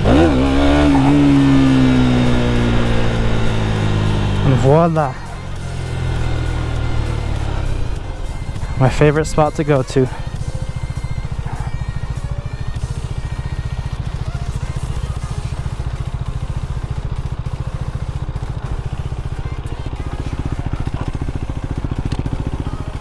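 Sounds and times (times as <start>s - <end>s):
motorcycle engine running at low revs: 0.0s - 23.0s.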